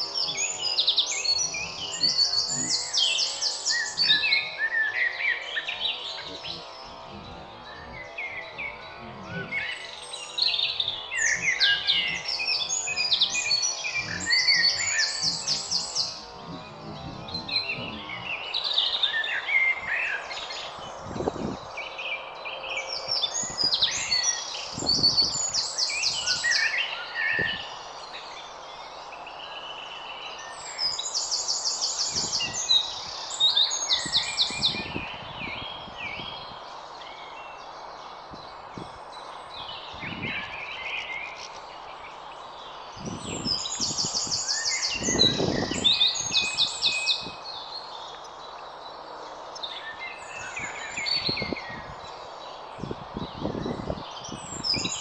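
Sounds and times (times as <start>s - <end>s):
bird song of rapid repeated notes: 0.0s - 55.0s
soft bird chirps: 0.0s - 55.0s
steady background hiss: 0.0s - 55.0s.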